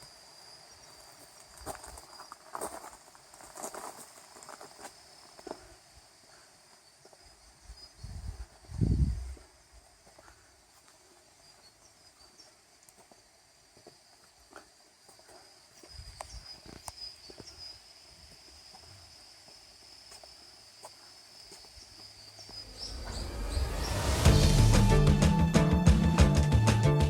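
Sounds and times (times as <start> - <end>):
crickets chirring: 0.0 - 24.2
music: 22.8 - 27.0.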